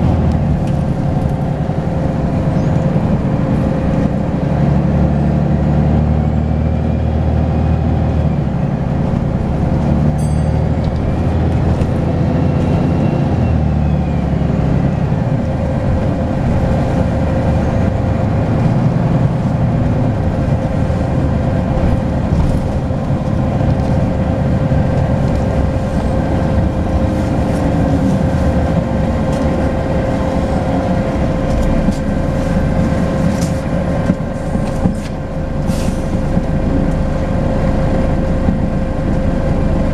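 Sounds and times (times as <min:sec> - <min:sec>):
bus diesel engine running: 0:00.0 - 0:39.9
turbocharger whistle: 0:12.4 - 0:14.8.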